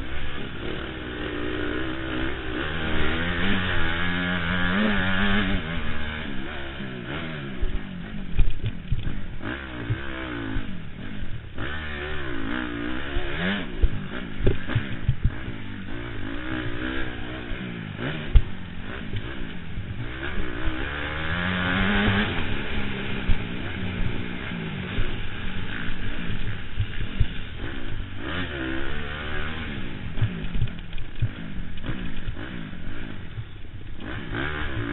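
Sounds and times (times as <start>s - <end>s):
motocross bike engine revving: 0.0s - 34.9s.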